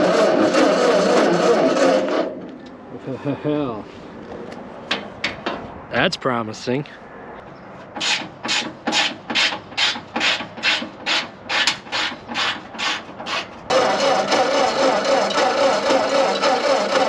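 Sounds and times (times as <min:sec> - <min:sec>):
engine cranking without firing: 0:00.0 - 0:02.8, 0:13.7 - 0:17.0
steady loud mechanical noise: 0:00.0 - 0:05.7, 0:07.9 - 0:17.0.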